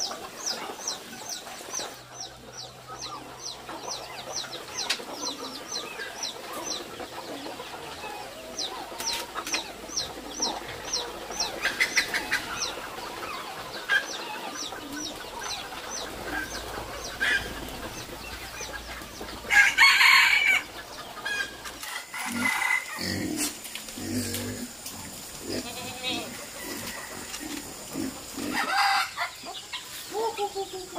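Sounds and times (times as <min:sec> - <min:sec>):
chicks peeping: 0:00.0 - 0:30.9
harsh chicken call: 0:25.3 - 0:29.4.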